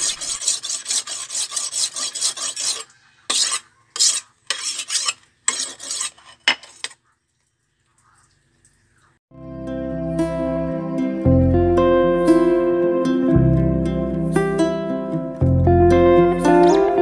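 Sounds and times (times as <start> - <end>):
knife strokes on whetstone: 0.0 - 7.0.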